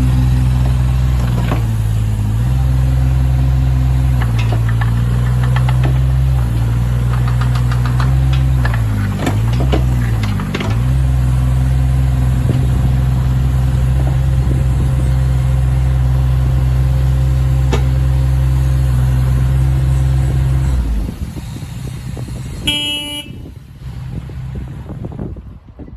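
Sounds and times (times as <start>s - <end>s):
diesel engine running: 0.0s - 25.9s
short horn-like beep: 22.6s - 23.5s.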